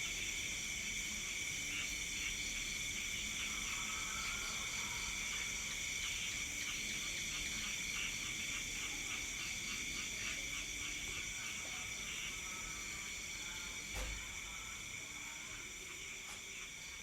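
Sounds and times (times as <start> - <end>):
crickets trilling: 0.0 - 17.0
pulsing insect call: 0.0 - 17.0.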